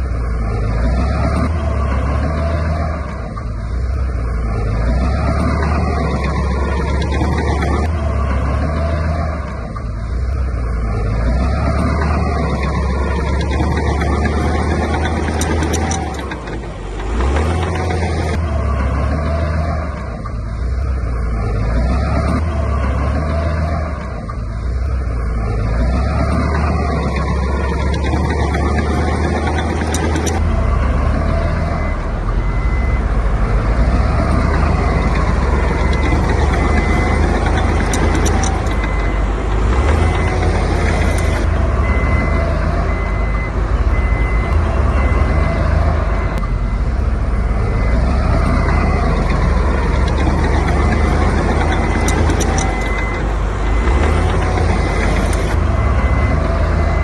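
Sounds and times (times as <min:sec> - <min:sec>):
diesel machinery running: 0:00.0 - 0:57.0
reversing alarm beeping: 0:04.5 - 0:20.0, 0:20.7 - 0:57.0.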